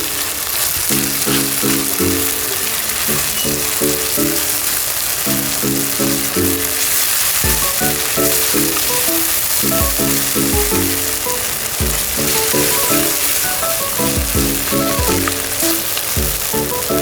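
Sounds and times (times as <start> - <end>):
food sizzling in a pan: 0.0 - 17.0
background music with low beat: 7.4 - 17.0.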